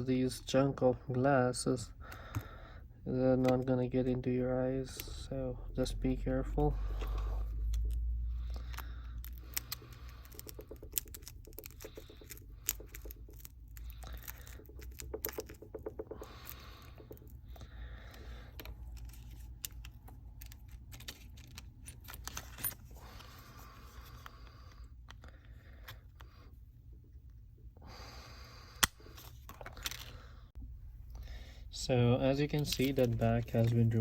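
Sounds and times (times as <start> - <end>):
low steady hum: 0.0 - 34.0
pry tool clicking and scraping: 6.9 - 17.4.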